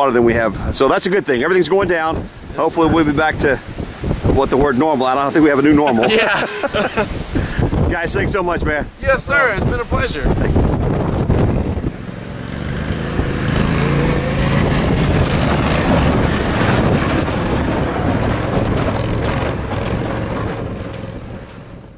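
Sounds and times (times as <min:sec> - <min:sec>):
rushing noise: 0:09.0 - 0:21.9
vehicle engine running: 0:11.3 - 0:21.9.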